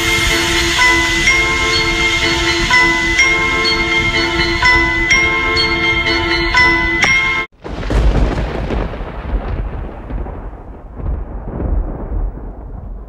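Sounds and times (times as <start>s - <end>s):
music with bell-like mallet tones: 0.0s - 7.5s
thunder rumbling: 0.0s - 13.0s.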